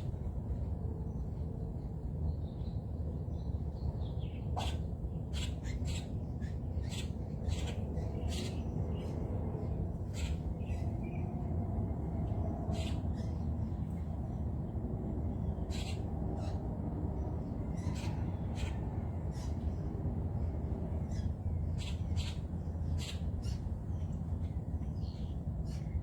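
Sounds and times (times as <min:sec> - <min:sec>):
birds calling: 0:04.3 - 0:11.4, 0:12.6 - 0:13.4, 0:15.5 - 0:16.7.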